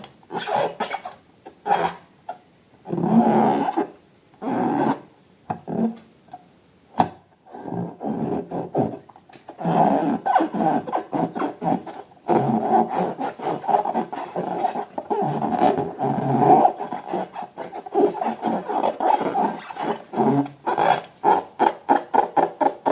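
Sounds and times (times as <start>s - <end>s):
rubber balloons squeaking: 0.0s - 2.0s, 7.6s - 22.9s.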